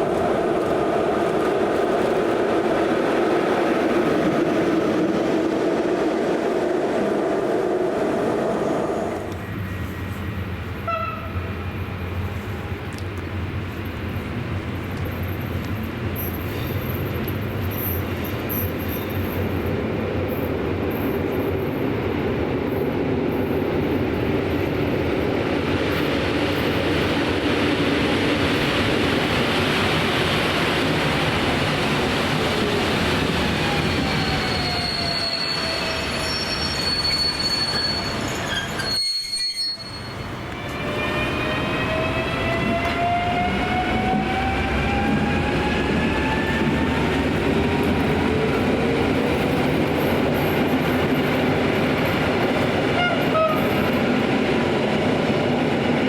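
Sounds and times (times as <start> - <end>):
train wheels on track: 0.0 - 56.0
high steady squeal: 33.6 - 40.3.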